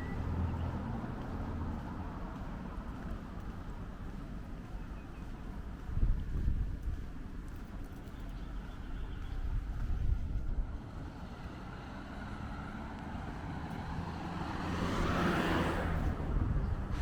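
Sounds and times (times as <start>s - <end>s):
wind rumble on microphone: 0.2s - 11.2s, 14.9s - 17.0s
car driving past: 10.8s - 17.0s.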